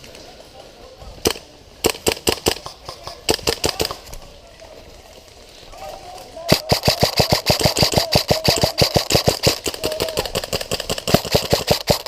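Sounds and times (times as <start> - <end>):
airsoft gun full-auto firing: 6.5 - 12.0.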